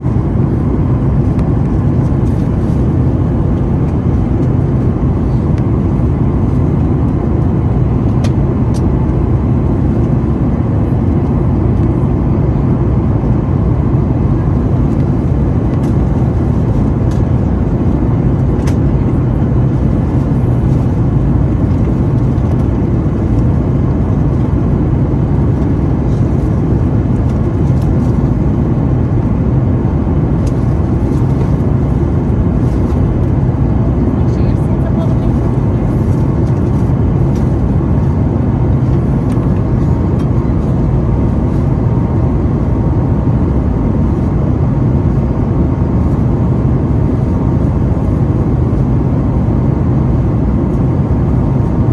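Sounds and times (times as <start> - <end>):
air rushing in cabin: 0.0 - 51.9
jet engines rumbling: 0.0 - 51.9.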